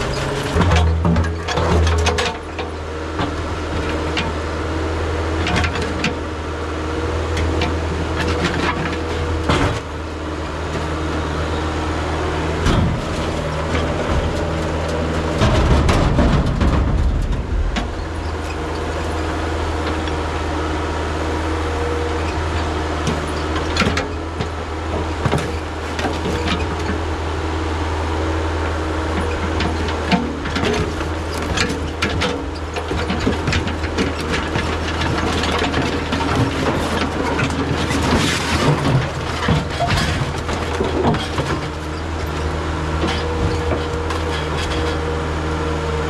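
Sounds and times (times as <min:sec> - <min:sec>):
excavator diesel engine running: 0:00.0 - 0:46.0
knocks and clanks: 0:00.2 - 0:03.4, 0:12.6 - 0:20.1, 0:29.2 - 0:42.4.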